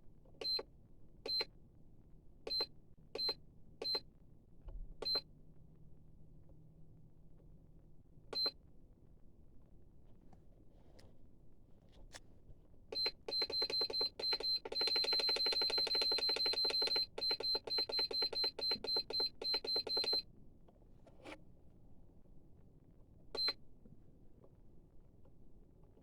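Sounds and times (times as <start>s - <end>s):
long unbroken beep: 12.9s - 20.2s
rapid high beeps: 13.0s - 20.2s.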